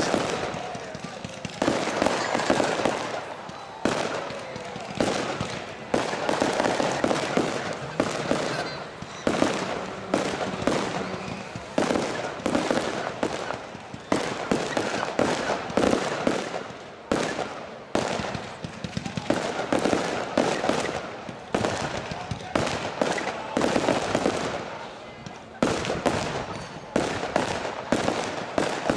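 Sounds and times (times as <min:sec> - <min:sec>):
fireworks shells bursting: 0:00.0 - 0:22.0.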